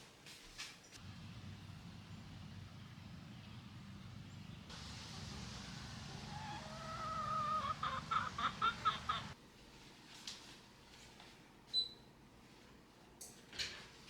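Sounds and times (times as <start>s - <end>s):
low steady rumble: 1.0s - 9.4s
chickens clucking: 4.7s - 9.4s.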